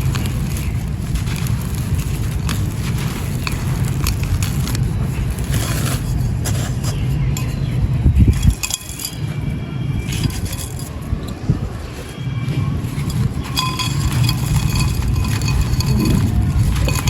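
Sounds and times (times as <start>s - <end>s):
dried cement crunching by hand: 0.0s - 17.0s
steady low rumble: 12.4s - 17.0s.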